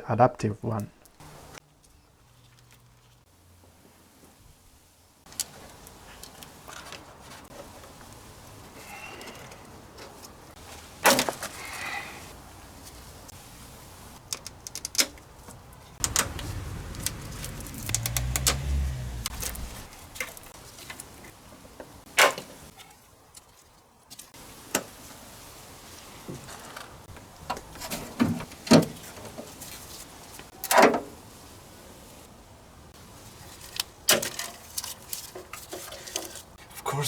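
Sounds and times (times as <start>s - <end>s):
low rumbling hum: 16.0s - 20.2s.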